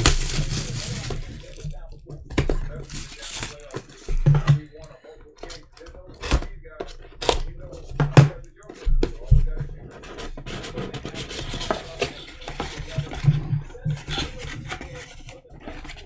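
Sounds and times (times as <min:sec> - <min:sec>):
card pack clicks: 0:00.0 - 0:01.8, 0:02.8 - 0:04.1
trading cards scratching and rubbing: 0:00.0 - 0:16.0.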